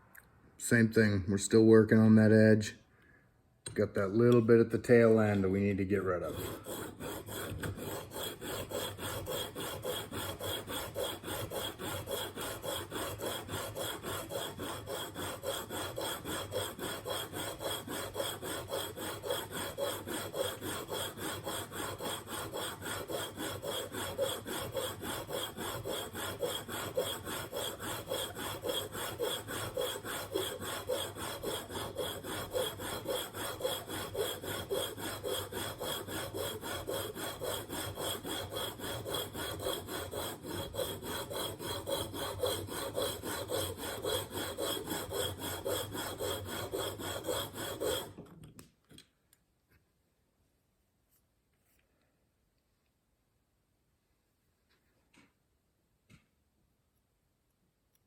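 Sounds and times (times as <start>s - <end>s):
blade rasping on sharpening plate: 6.2s - 48.2s.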